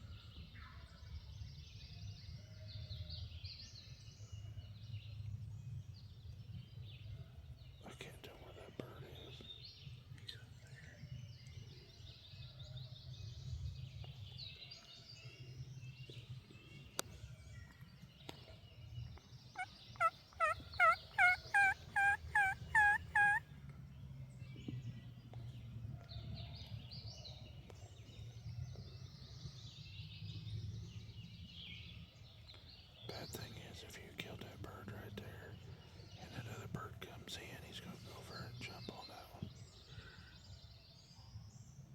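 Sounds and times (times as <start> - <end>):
faint songbirds chirping: 0.0 - 41.9
turkey yelping: 19.6 - 23.4.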